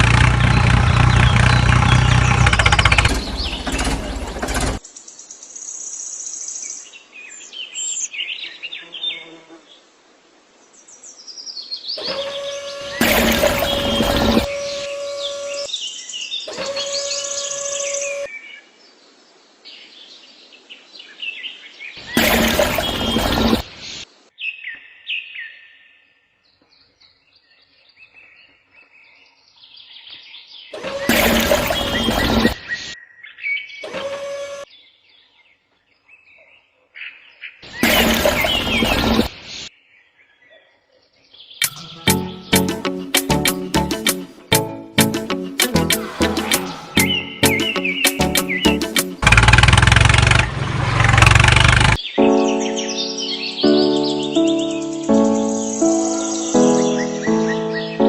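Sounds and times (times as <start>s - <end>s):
loud noisy burst: 0.0s - 4.8s, 12.8s - 15.0s, 22.1s - 23.6s, 31.0s - 32.6s, 37.8s - 39.3s, 45.8s - 47.8s, 48.9s - 52.0s
small birds chirping: 0.0s - 9.9s, 10.7s - 33.9s, 34.7s - 50.5s, 51.1s - 58.0s
steady high tone: 41.6s - 49.3s.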